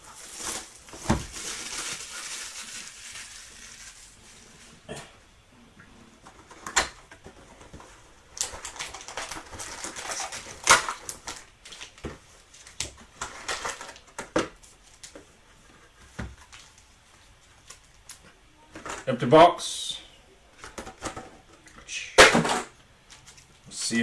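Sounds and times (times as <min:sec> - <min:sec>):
wrappers rustling and crinkling: 0:00.0 - 0:05.0, 0:08.4 - 0:18.2.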